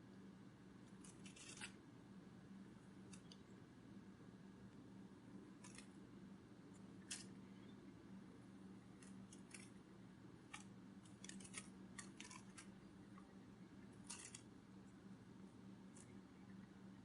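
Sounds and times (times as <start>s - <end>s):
faint low hum: 0.0s - 17.0s
faint clicks and ticks: 3.0s - 3.5s.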